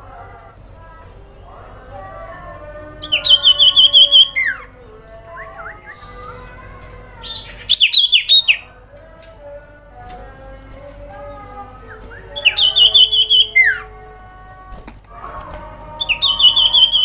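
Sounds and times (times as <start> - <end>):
bird high chirps: 7.2 - 8.7, 11.2 - 13.8, 16.0 - 17.0.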